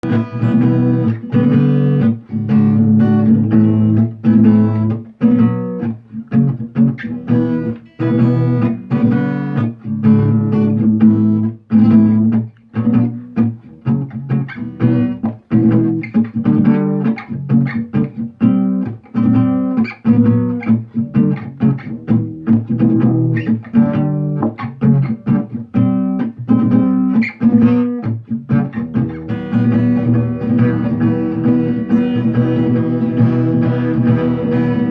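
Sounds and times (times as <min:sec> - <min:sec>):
guitar chords strummed: 0:00.0 - 0:34.9
knocking on guitar body: 0:24.4 - 0:24.6.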